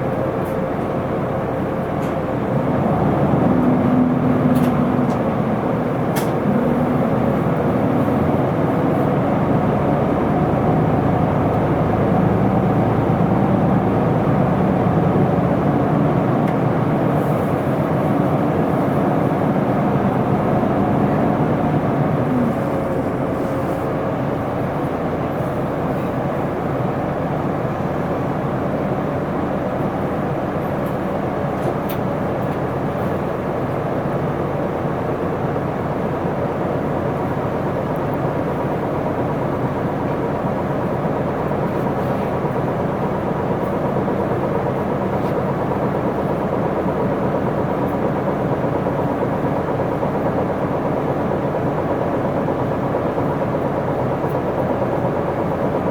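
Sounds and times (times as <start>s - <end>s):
bus diesel engine running: 0.0s - 55.9s.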